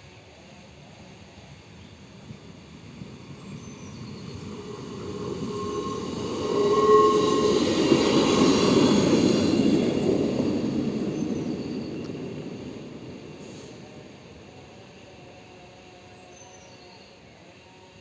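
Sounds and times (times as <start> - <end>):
train passing: 0.1 - 18.0
wheels squealing on rails: 2.2 - 18.0.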